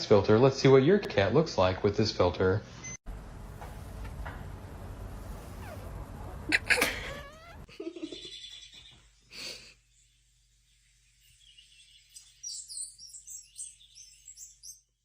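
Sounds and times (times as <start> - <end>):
small birds chirping: 5.2 - 15.0.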